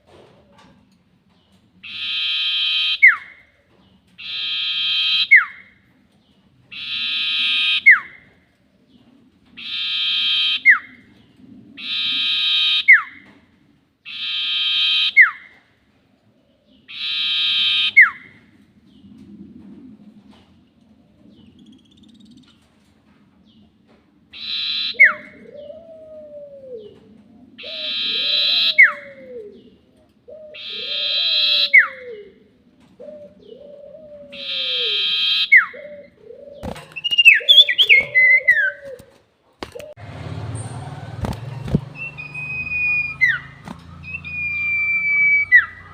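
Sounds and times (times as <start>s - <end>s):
bird calls with falling whistles: 36.6s - 38.8s, 40.6s - 45.9s.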